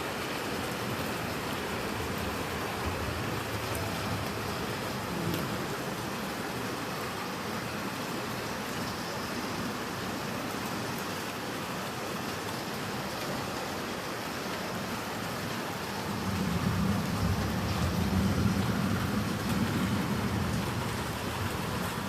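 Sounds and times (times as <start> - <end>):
heavy rain pouring: 0.0 - 22.0
thunder rumble: 16.0 - 22.0.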